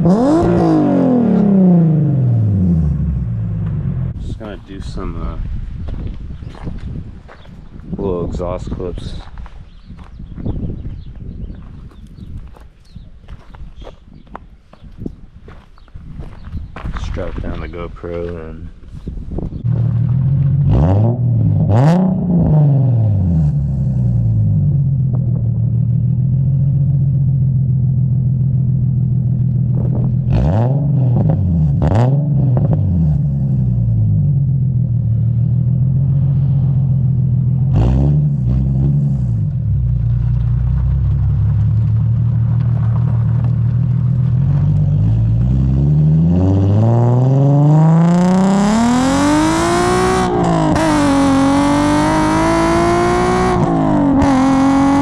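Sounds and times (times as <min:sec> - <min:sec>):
car engine revving: 0:00.0 - 0:04.4, 0:19.6 - 0:55.0.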